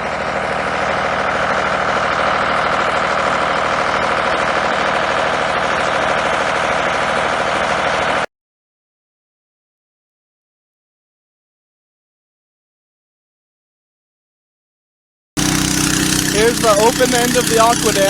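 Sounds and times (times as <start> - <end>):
engine running steadily: 0.0 - 8.3, 15.4 - 18.0.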